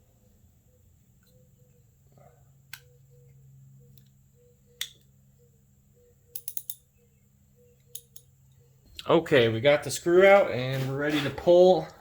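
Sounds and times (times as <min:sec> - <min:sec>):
socket wrench clicking: 0:06.3 - 0:06.8.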